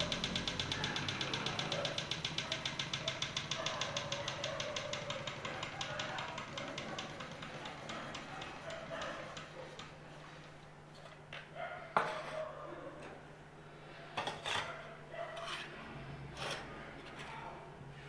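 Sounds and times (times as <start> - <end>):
small engine rapid ticking: 0.0 - 10.0.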